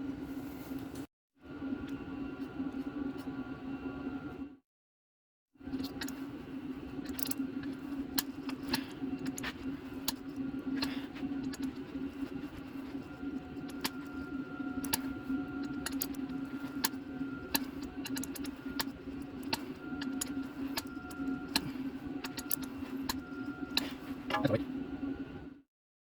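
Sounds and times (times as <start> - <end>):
steady low hum: 0.0 - 4.6, 5.6 - 25.6.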